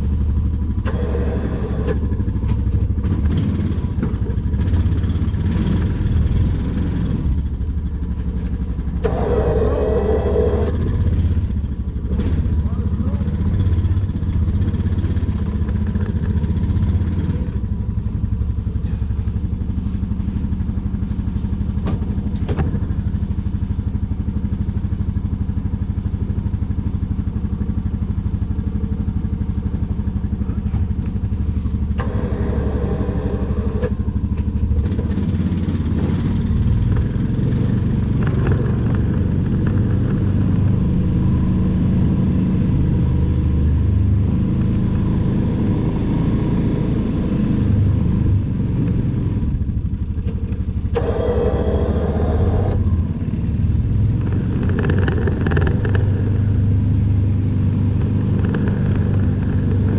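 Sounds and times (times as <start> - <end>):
machine engine humming: 0.0 - 5.0, 8.0 - 23.8, 28.3 - 42.2, 49.4 - 59.9.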